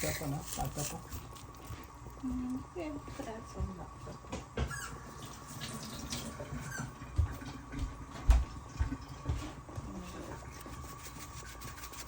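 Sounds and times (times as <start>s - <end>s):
faint steady hum: 0.0s - 12.0s
dull knocks in kitchen: 7.1s - 10.0s.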